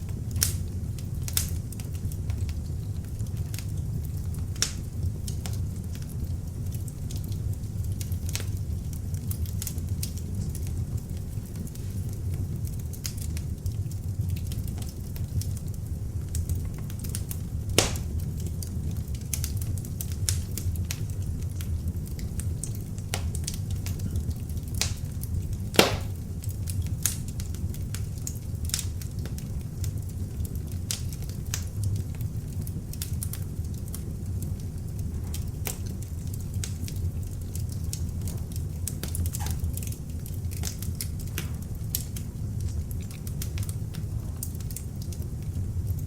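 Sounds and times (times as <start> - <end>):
fire crackling and popping: 0.0 - 46.0
fire rumbling: 0.0 - 46.0.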